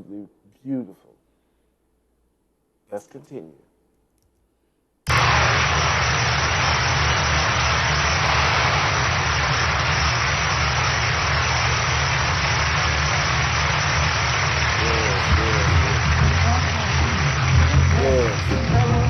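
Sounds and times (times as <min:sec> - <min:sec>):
audience applause: 0:05.1 - 0:19.0.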